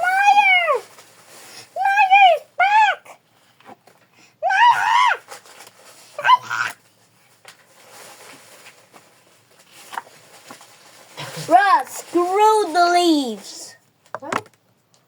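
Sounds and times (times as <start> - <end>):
child shouting: 1.8 - 3.1, 11.5 - 13.7.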